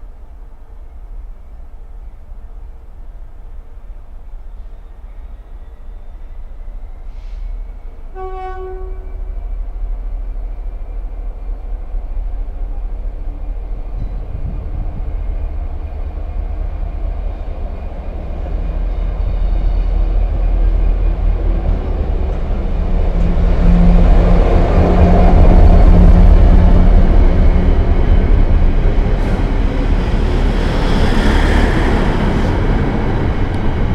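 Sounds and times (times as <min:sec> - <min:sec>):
approaching train rumble: 0:00.0 - 0:33.9
train horn toot: 0:08.1 - 0:09.4.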